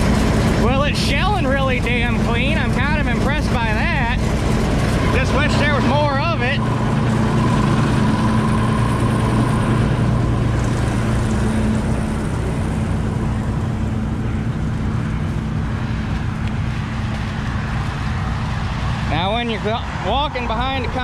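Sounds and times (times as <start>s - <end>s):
combine harvester engine hum: 0.0s - 21.0s
faint high whine: 0.6s - 16.8s.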